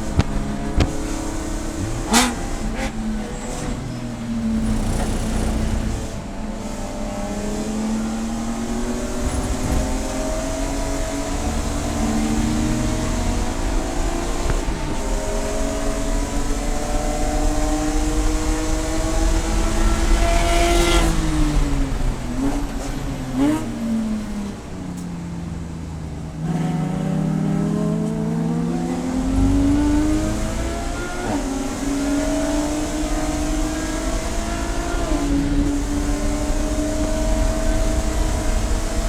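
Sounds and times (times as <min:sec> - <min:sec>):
race car engine revving: 0:00.0 - 0:39.0.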